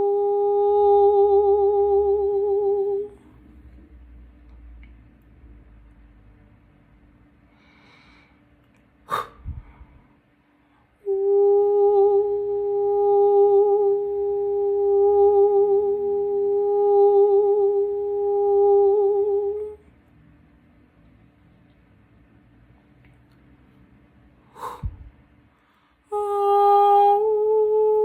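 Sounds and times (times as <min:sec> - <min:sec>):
woman humming a long note: 0:00.0 - 0:03.2, 0:11.0 - 0:19.9, 0:26.1 - 0:28.0.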